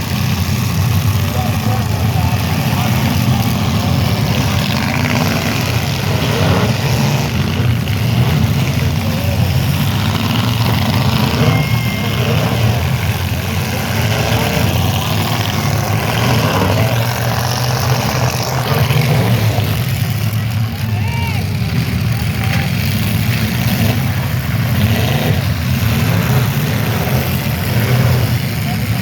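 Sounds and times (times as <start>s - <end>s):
faint crowd voices: 0.0s - 29.0s
loud car engines running: 0.0s - 29.0s.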